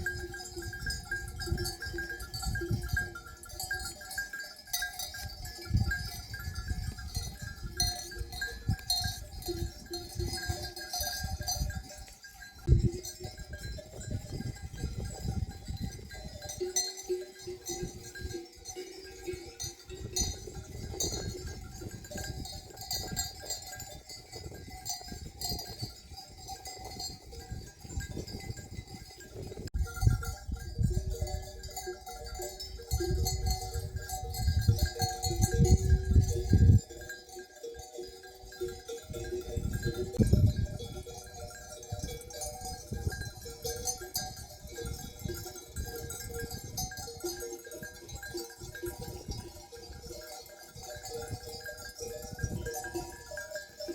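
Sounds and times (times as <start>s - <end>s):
neck bells clinking: 0.0s - 53.9s.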